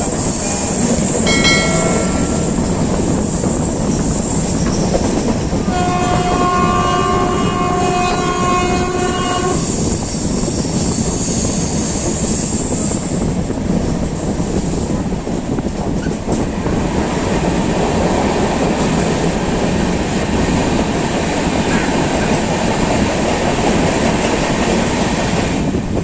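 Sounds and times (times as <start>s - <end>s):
train wheels rumbling on rails: 0.0s - 26.0s
train horn blasts: 5.7s - 9.8s.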